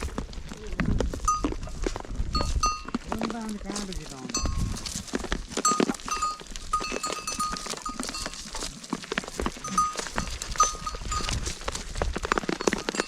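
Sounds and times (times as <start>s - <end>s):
hooves clattering: 0.0s - 13.0s
small bells ringing: 1.2s - 1.6s, 2.3s - 2.9s, 4.3s - 4.8s, 5.6s - 8.7s, 9.6s - 11.6s, 12.2s - 13.0s.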